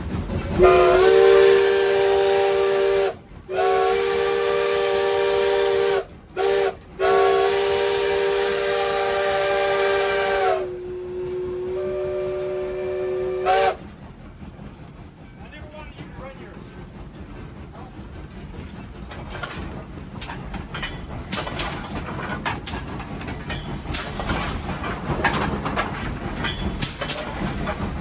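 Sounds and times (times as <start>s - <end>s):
steam locomotive whistle blasts: 0.6s - 13.8s.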